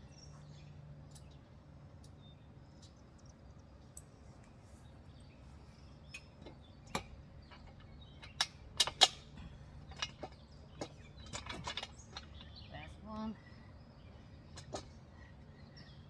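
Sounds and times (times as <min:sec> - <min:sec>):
metal parts clicking and clinking: 0:06.9 - 0:09.3, 0:09.9 - 0:12.5.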